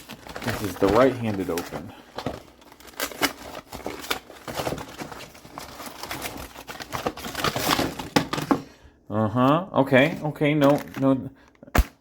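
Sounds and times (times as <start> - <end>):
cardboard and plastic packaging crackling: 0.0 - 8.6.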